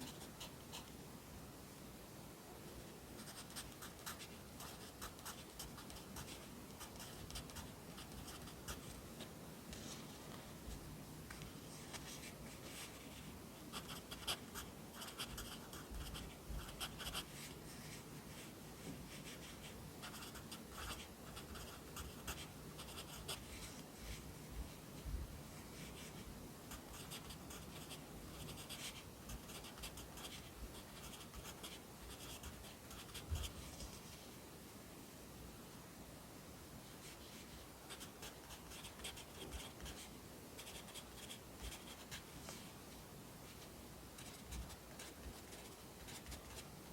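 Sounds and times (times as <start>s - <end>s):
pencil scratching on paper: 3.2s - 9.0s, 13.7s - 18.5s, 19.1s - 24.2s, 25.8s - 33.6s, 37.9s - 40.0s, 40.6s - 42.2s.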